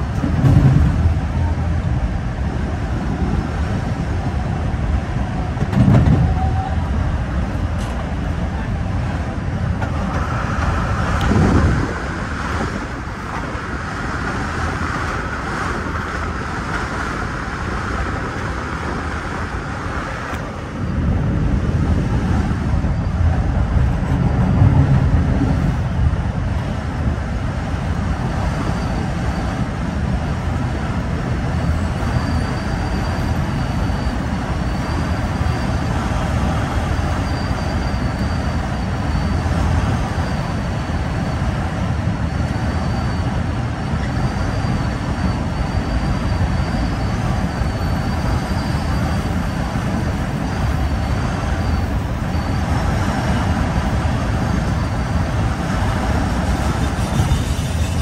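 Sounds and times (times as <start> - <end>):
train rumbling over steel bridge: 0.0 - 58.0
train wheels rumbling on track: 0.0 - 58.0
faint high whine: 28.5 - 58.0.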